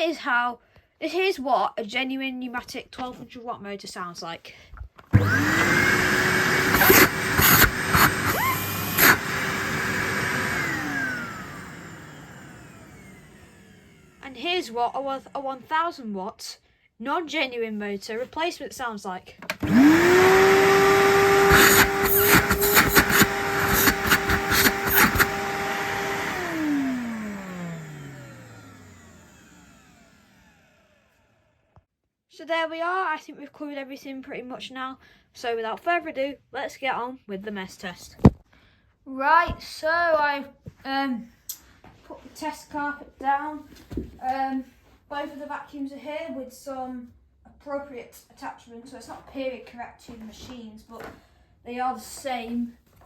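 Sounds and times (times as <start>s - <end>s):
vacuum cleaner motor whining: 5.1s - 14.4s, 19.5s - 31.4s.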